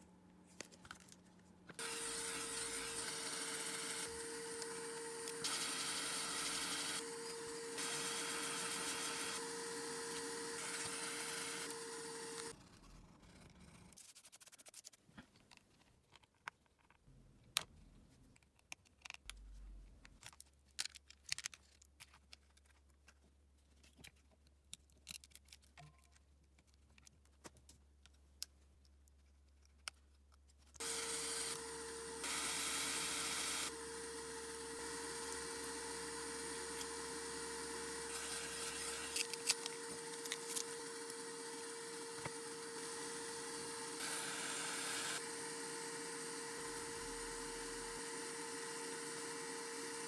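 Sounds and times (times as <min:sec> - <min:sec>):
small tools clicking on phone: 0:38.1 - 0:42.6.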